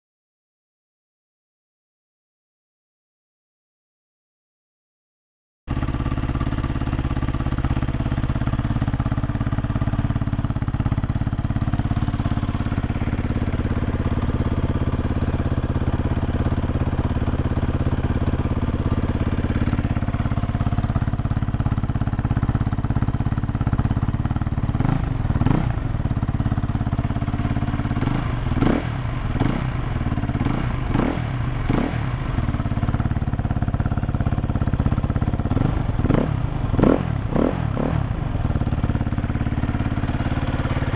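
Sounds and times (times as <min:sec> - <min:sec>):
motorcycle engine idling and revving: 0:05.7 - 0:40.9.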